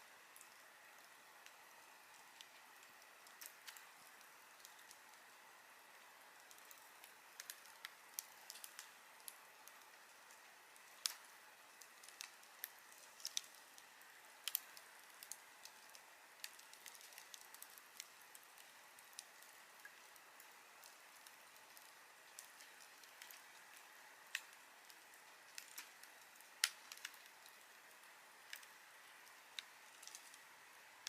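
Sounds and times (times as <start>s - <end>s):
fire hissing softly: 0.0s - 31.0s
campfire crackling and popping: 0.1s - 31.0s.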